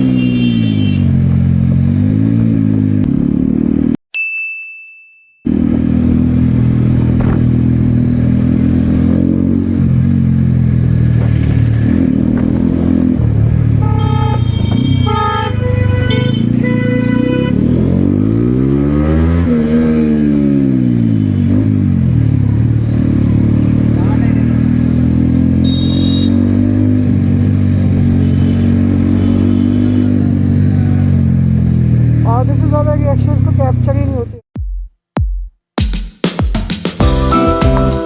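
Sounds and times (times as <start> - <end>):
vehicle horns honking: 0.0 - 1.2, 13.7 - 17.9, 25.6 - 26.7, 28.0 - 30.2
motorcycle engine running: 5.5 - 18.3.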